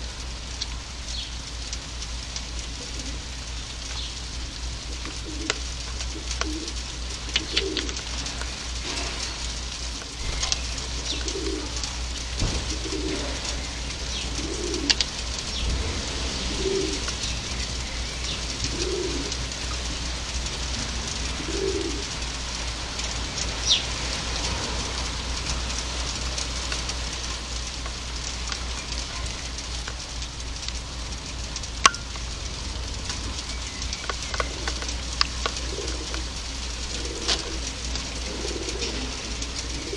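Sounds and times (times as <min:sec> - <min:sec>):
steady hiss: 0:00.0 - 0:39.9
pigeon cooing: 0:04.9 - 0:08.0, 0:10.2 - 0:11.9, 0:12.6 - 0:13.6, 0:14.2 - 0:15.1, 0:16.4 - 0:17.1, 0:18.6 - 0:19.5, 0:21.3 - 0:22.1, 0:34.4 - 0:39.9.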